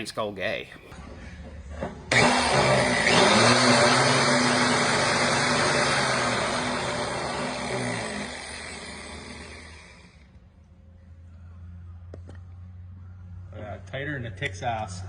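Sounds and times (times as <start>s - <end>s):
grinder motor whirring: 1.8s - 10.4s.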